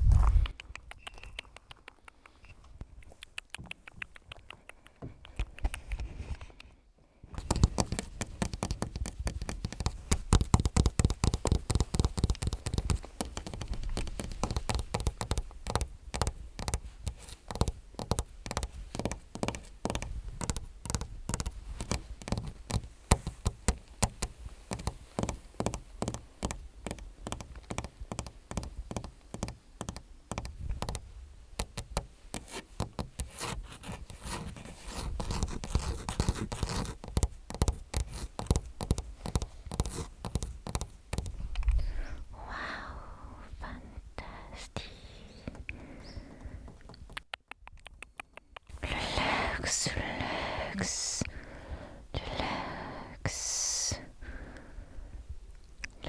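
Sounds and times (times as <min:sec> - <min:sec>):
fingernails tapping: 0:07.4 - 0:41.5, 0:45.5 - 0:47.2.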